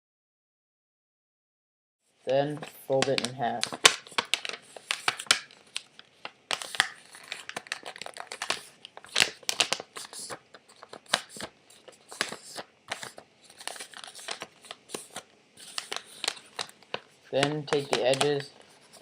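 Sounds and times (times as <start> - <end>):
paper rustling and crackling: 2.5 - 19.0.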